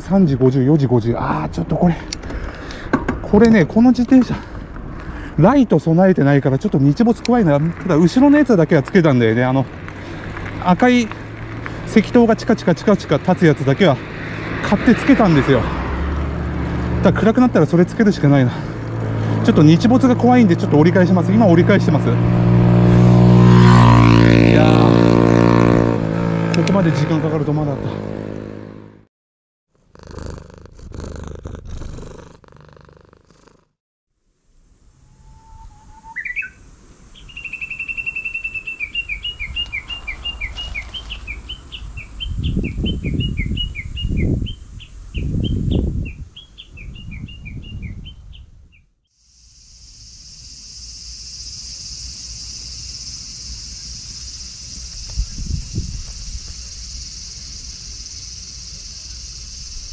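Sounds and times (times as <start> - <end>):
songbird trilling: 35.1 - 48.8
high-pitched insect drone: 49.2 - 59.9.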